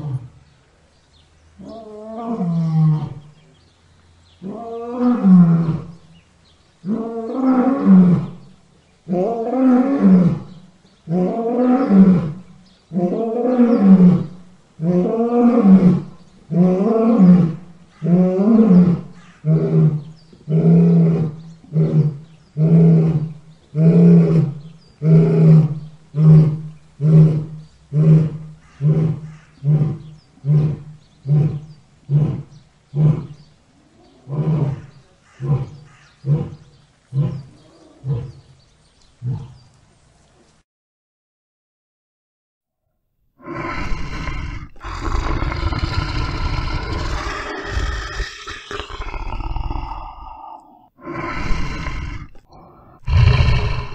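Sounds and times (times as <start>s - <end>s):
lion roaring and grunting: 34.1s - 38.5s, 43.4s - 53.9s.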